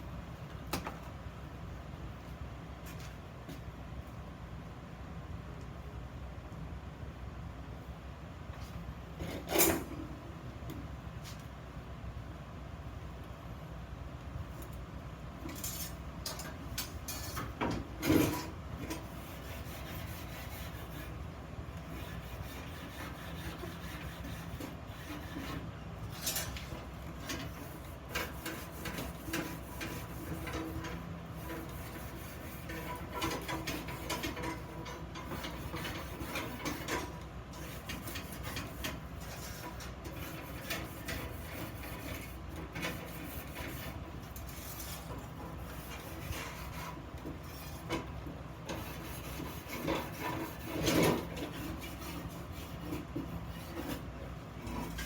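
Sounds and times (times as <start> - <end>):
scraping on iron parts: 15.5 - 20.6, 22.0 - 55.0.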